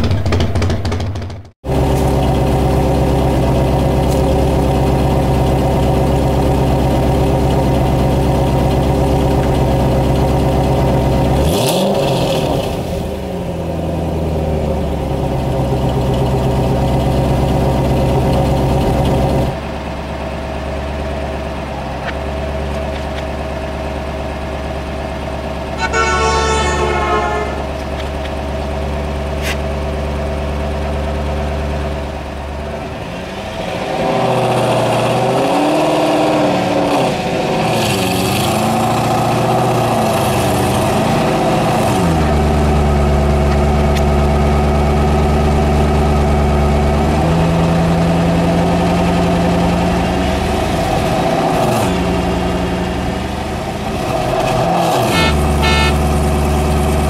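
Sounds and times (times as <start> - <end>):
car engine idling and revving: 0.0 - 57.0
car horn: 25.8 - 28.0, 54.8 - 56.4.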